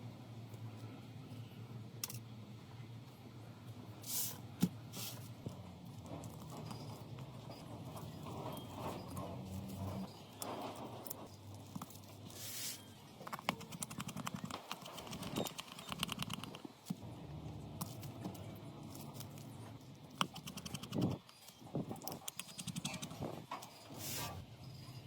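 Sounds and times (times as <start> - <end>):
hand tools clicking on phone parts: 13.3 - 16.6, 20.1 - 21.2, 22.1 - 23.2.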